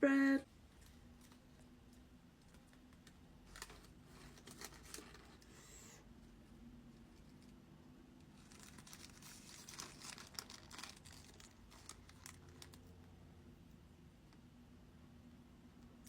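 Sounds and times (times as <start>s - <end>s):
faint steady hum: 0.0s - 16.0s
food wrapper crinkling: 2.5s - 5.6s, 8.3s - 13.0s.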